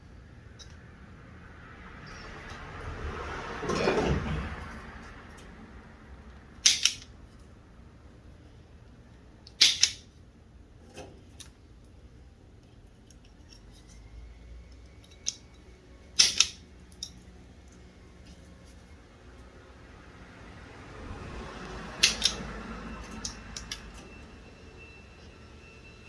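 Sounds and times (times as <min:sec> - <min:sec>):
wire cutters snipping wire: 0:06.6 - 0:07.1, 0:09.5 - 0:10.0, 0:16.2 - 0:17.2, 0:21.9 - 0:24.0.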